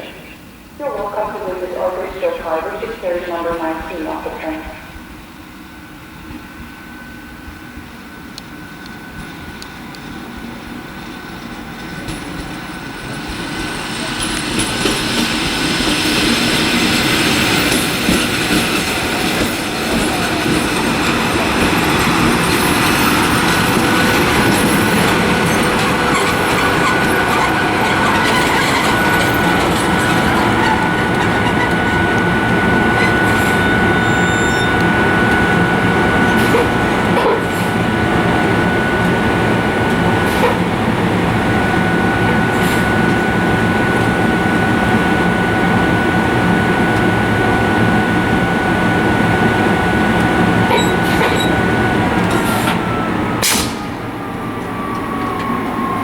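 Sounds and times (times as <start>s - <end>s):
steady high tone: 0.0s - 5.0s
train running on tracks: 0.0s - 56.0s.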